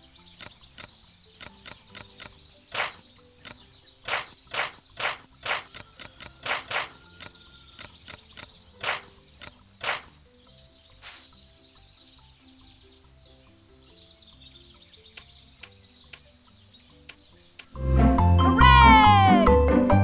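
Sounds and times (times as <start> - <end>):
faint background music: 0.0 - 20.0
irregular sharp taps: 0.4 - 10.1.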